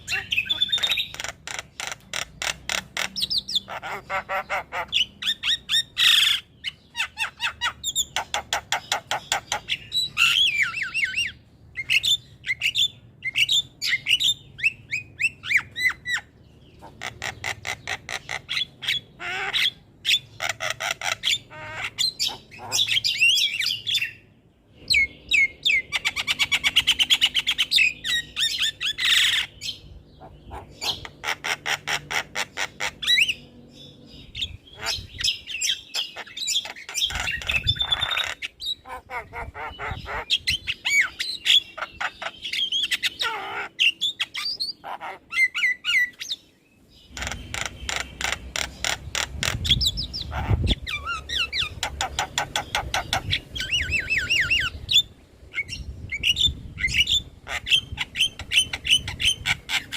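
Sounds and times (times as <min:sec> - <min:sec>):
myna bird singing: 0:00.0 - 0:59.9.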